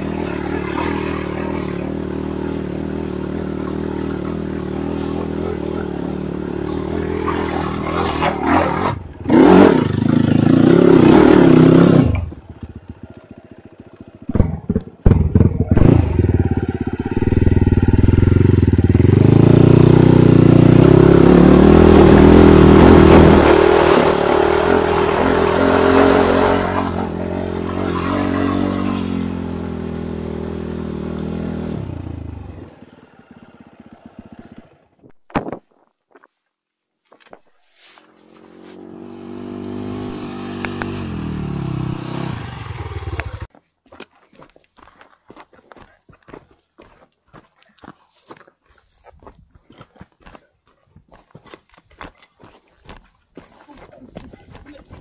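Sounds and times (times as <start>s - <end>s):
dirt bike engine revving: 0.0s - 35.0s, 38.3s - 43.5s.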